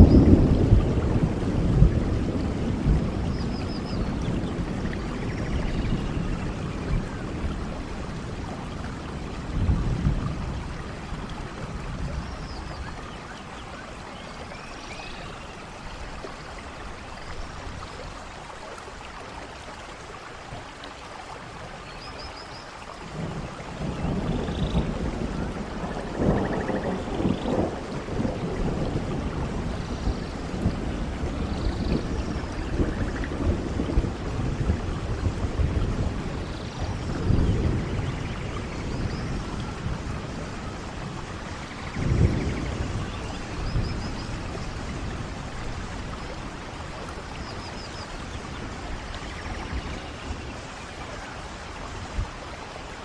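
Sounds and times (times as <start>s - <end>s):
rolling thunder: 0.0s - 13.0s, 23.0s - 50.6s
steady rain: 0.0s - 53.0s.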